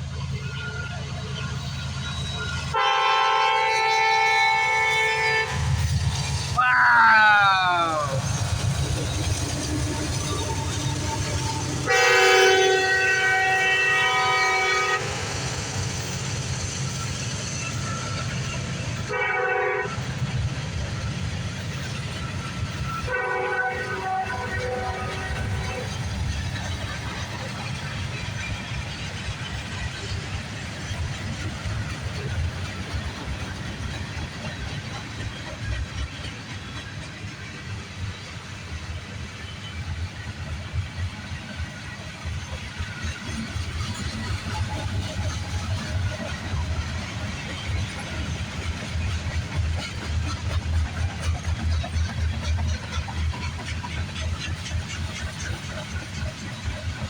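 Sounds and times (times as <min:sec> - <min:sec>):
train wheels rumbling on rail: 0:00.0 - 0:57.0
locomotive air horn blast: 0:02.7 - 0:05.8, 0:11.8 - 0:15.3, 0:19.1 - 0:20.0, 0:23.1 - 0:25.6.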